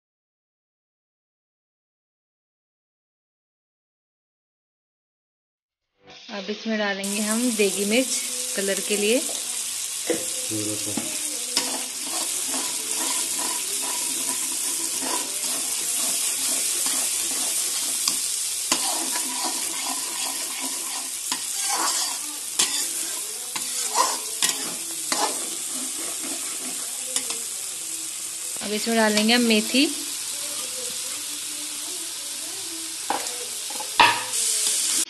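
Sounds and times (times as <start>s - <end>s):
masala sizzling in hot oil: 6.0s - 35.0s
spatula scraping pan: 10.1s - 27.6s.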